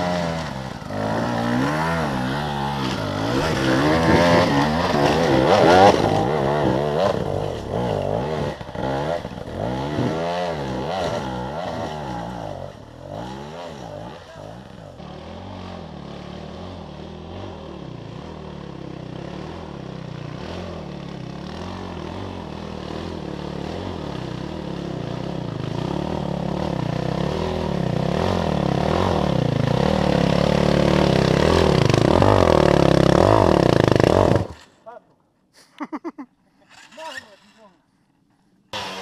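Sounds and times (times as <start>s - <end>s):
motorcycle engine revving: 0.0s - 34.8s, 38.7s - 39.0s.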